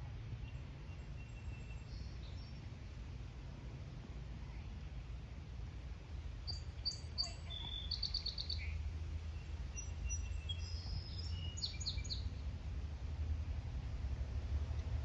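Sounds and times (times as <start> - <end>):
steady low rumble: 0.0 - 7.8, 8.5 - 15.0
small birds chirping and trilling: 0.4 - 2.7, 6.4 - 12.4.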